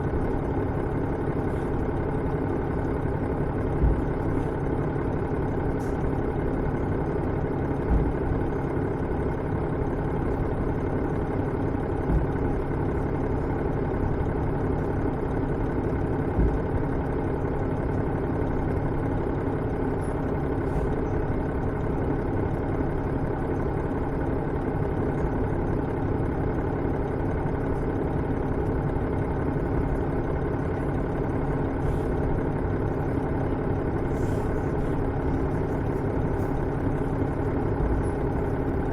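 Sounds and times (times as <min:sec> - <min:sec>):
diesel engine idling: 0:00.0 - 0:38.9
low thumps: 0:03.7 - 0:04.3.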